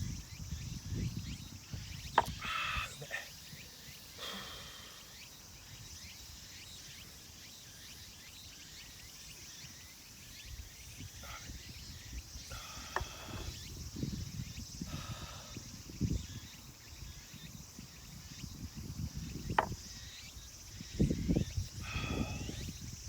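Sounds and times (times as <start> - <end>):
insect hiss: 0.0 - 23.0.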